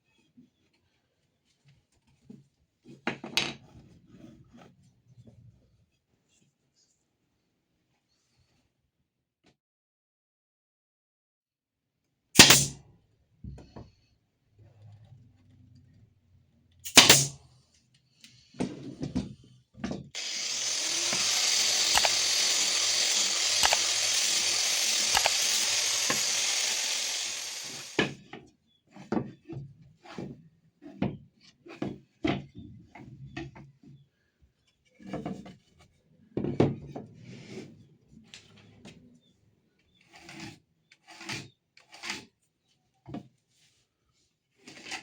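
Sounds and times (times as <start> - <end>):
power tool working wood: 20.2 - 28.0
wood and tools knocking: 20.2 - 28.0.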